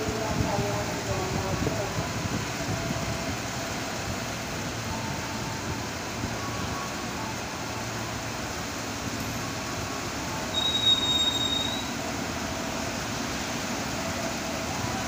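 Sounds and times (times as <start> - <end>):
train braking to a stop: 0.0 - 15.0
high-pitched brake squeal: 10.4 - 12.0.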